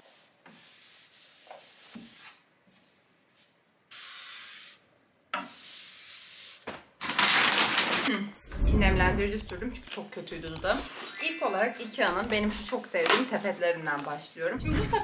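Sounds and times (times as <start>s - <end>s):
wipe rubbing over shelves: 0.0s - 4.8s, 5.5s - 6.6s.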